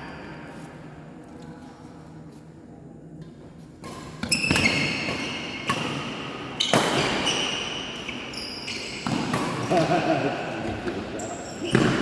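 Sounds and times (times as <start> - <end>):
racket hitting shuttlecock: 3.8 - 8.2, 8.8 - 10.0, 11.6 - 12.0
shoes squeaking on floor: 3.9 - 6.0, 6.6 - 9.8, 11.0 - 12.0.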